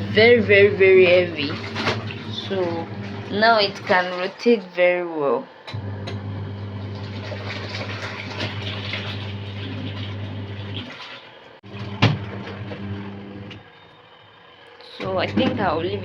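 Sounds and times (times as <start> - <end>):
water sloshing: 0.0 - 5.0, 6.8 - 13.6
washing machine motor humming: 0.0 - 16.0.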